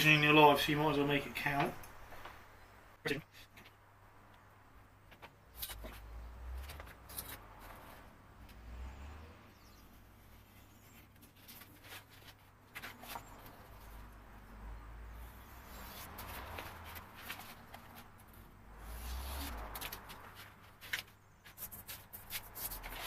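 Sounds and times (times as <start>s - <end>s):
soft scraping on paper: 9.8s - 14.0s, 15.5s - 23.0s.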